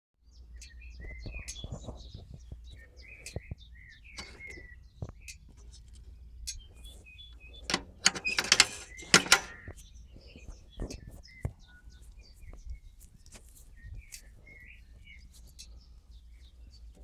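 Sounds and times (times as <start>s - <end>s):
small birds chirping: 0.2s - 17.0s
sharp rustling knocks: 7.6s - 9.8s.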